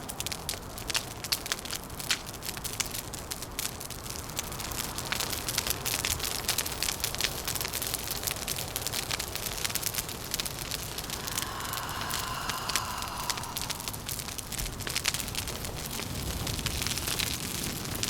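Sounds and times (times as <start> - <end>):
wood fire crackling: 0.2 - 18.0
low rumble of wind: 10.4 - 17.3.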